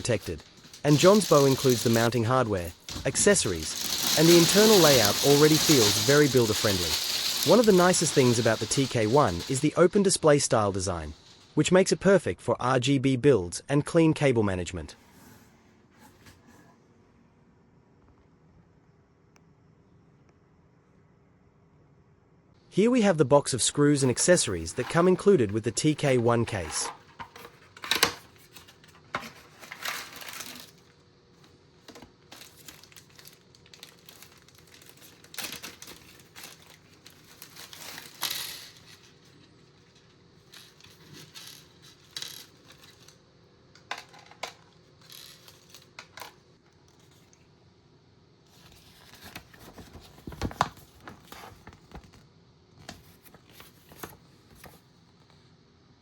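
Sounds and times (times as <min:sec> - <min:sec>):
plastic packaging crinkling: 0:00.0 - 0:09.7, 0:24.1 - 0:31.0, 0:31.9 - 0:43.2.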